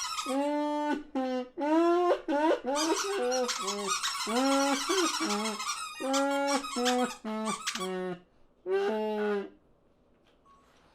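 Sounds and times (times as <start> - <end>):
cartoon birds chattering: 2.8 - 7.8.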